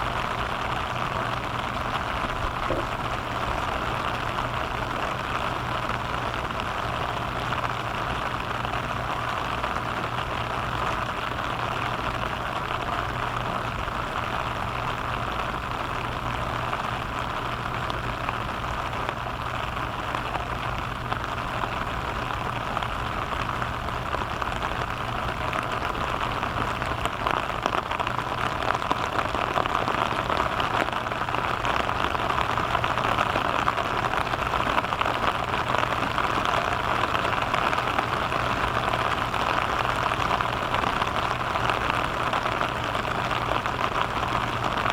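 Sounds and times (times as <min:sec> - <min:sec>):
low steady hum: 0:00.0 - 0:27.2
rain pattering on surfaces: 0:00.0 - 0:44.9.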